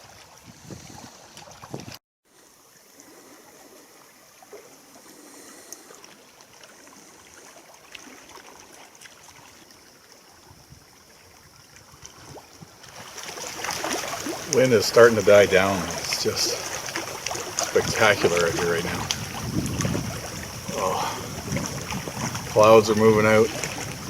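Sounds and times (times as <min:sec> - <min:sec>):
small water splashes: 0:00.0 - 0:24.0
water lapping and trickling: 0:00.0 - 0:24.0.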